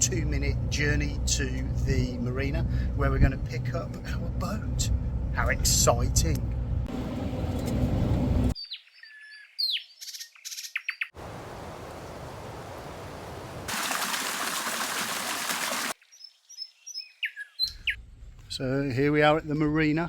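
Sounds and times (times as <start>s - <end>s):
birds chirping: 14.7s - 18.0s.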